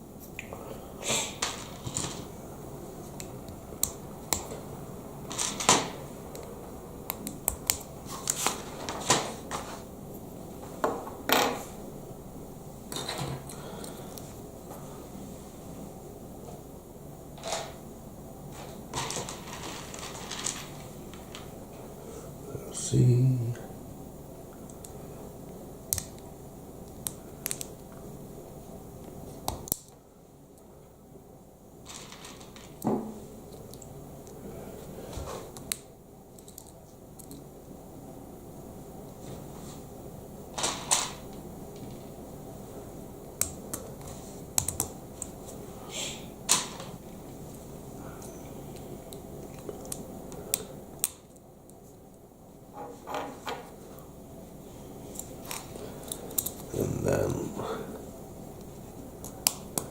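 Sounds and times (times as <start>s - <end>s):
rattle of plastic parts: 5.3s - 6.0s, 18.5s - 21.5s, 31.9s - 32.8s, 40.6s - 41.2s.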